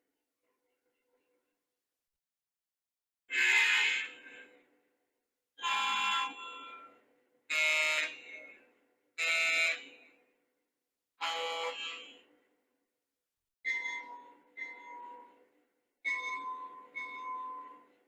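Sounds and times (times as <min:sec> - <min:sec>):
model train air horn blasts: 0:03.3 - 0:04.6, 0:05.6 - 0:08.6, 0:09.2 - 0:10.0, 0:11.2 - 0:12.3.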